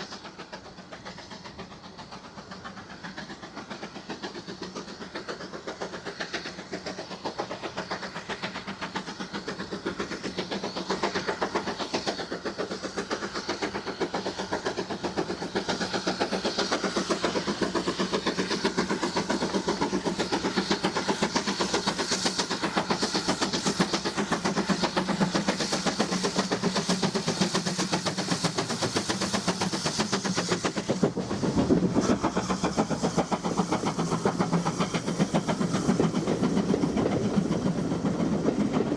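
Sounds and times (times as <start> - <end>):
steam train rhythmic clatter: 0.0 - 38.9.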